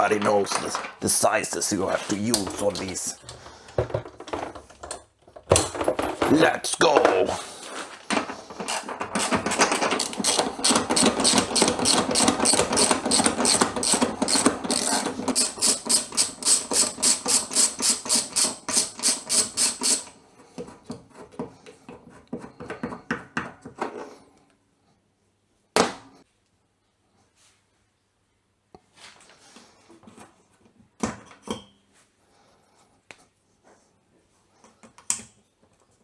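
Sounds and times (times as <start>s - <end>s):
impact wrench hammering: 10.0s - 20.1s.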